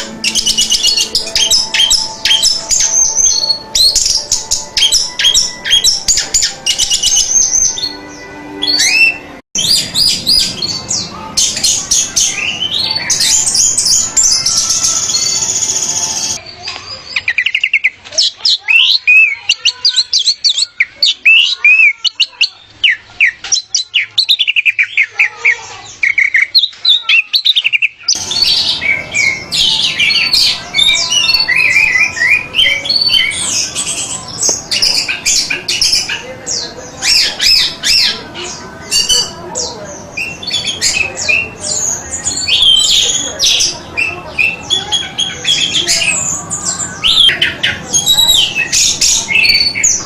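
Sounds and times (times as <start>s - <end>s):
thrush singing: 0.0s - 16.4s, 27.9s - 50.0s
background noise: 0.0s - 50.0s.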